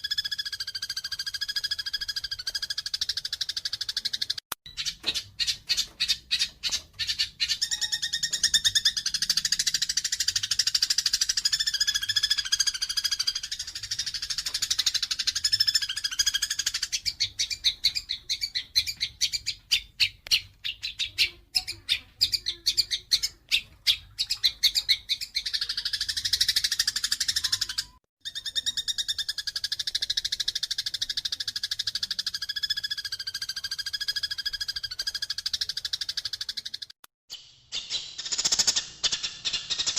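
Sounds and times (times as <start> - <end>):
sparrows chirping harshly: 0.0 - 37.0.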